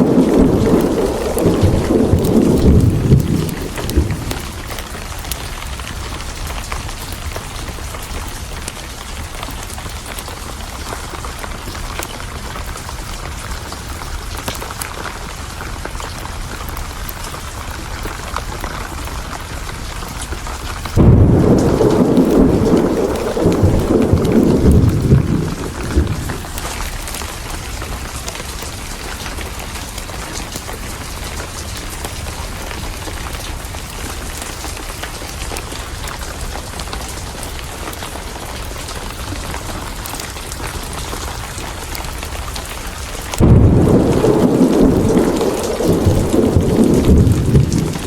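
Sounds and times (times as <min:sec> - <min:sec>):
thunder rumble: 0:00.0 - 0:06.5, 0:20.6 - 0:29.4, 0:41.9 - 0:48.0
heavy rain: 0:00.0 - 0:48.0.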